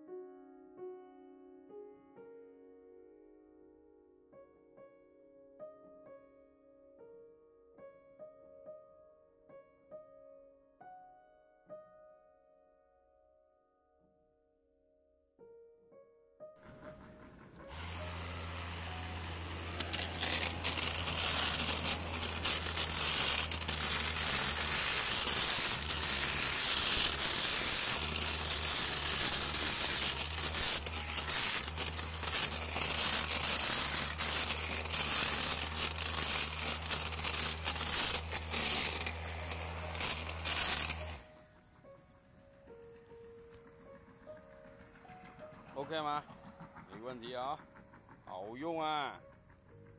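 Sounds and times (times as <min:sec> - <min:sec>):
grass trimmer humming: 0:17.6 - 0:41.4
plastic strips crackling through grass: 0:17.7 - 0:41.3.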